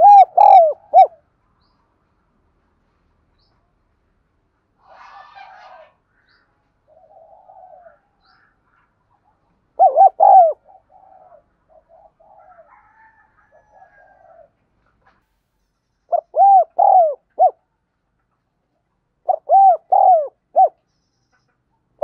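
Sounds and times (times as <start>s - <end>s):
dove cooing: 0.0s - 1.2s, 6.9s - 8.2s, 9.8s - 14.5s, 16.1s - 17.6s, 19.2s - 20.8s.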